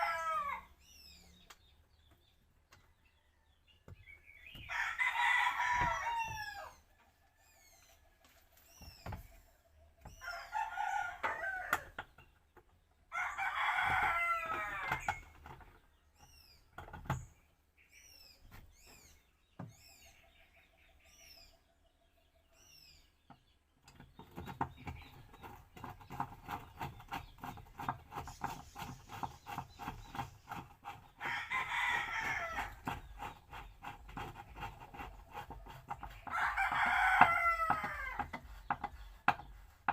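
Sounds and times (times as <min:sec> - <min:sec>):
roosters crowing: 0:00.0 - 0:00.8, 0:04.4 - 0:07.4, 0:10.1 - 0:12.1, 0:13.1 - 0:15.5, 0:28.2 - 0:39.6
small birds chirping: 0:00.0 - 0:39.9.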